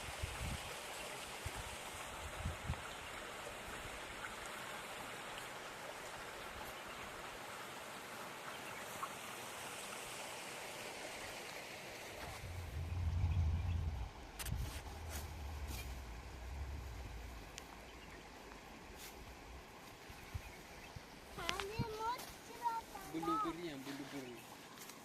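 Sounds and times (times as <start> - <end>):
stream running water: 0.0 - 25.0
low rumble: 12.2 - 20.0.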